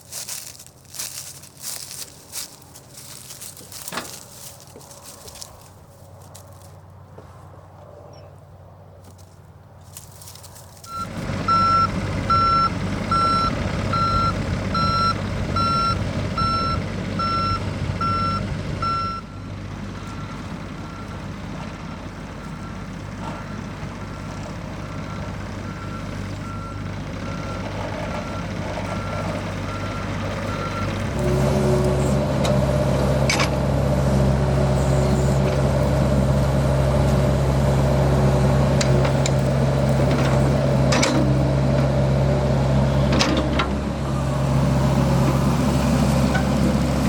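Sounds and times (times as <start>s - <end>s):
excavator diesel engine running: 0.0s - 7.3s, 9.5s - 47.0s
travel alarm beeping: 10.9s - 19.3s.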